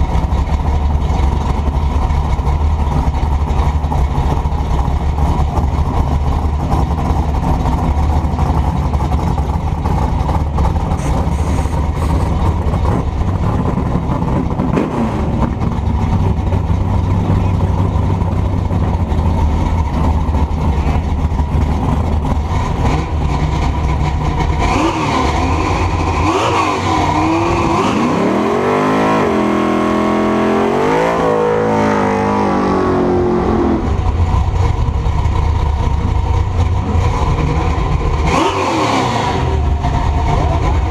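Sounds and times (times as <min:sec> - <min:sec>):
truck engine rumbling: 0:00.0 - 0:40.9
engine revving hard: 0:24.6 - 0:34.0, 0:38.2 - 0:39.8.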